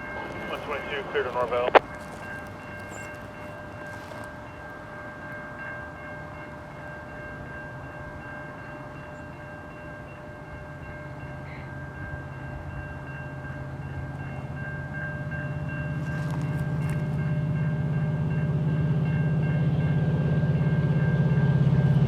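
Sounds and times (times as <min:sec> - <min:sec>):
diesel locomotive engine drone: 0:00.0 - 0:22.0.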